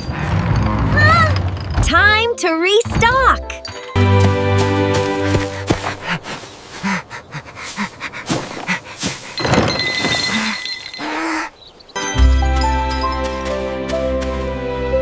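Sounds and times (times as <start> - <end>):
music: 1.8 - 6.3, 12.0 - 15.0.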